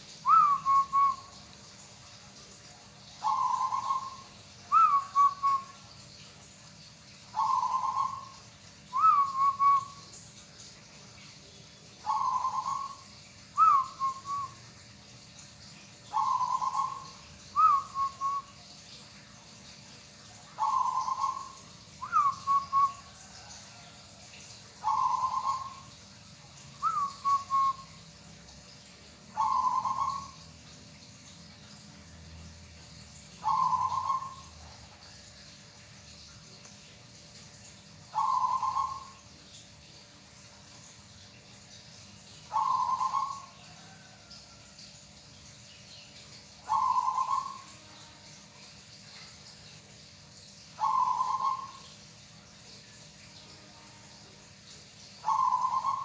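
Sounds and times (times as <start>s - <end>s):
dove cooing: 20.6s - 23.8s, 29.4s - 30.4s, 33.4s - 34.5s, 38.2s - 39.1s, 42.5s - 44.1s, 46.7s - 47.8s, 50.8s - 51.8s, 55.2s - 56.0s.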